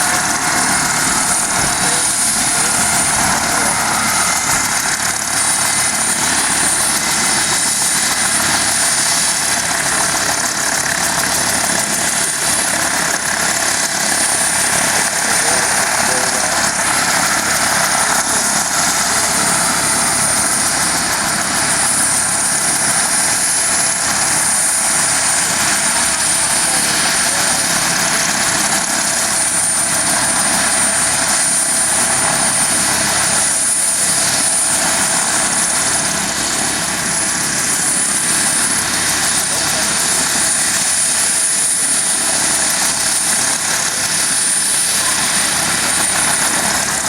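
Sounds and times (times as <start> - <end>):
helicopter turbine and rotor noise: 0.0 - 47.0.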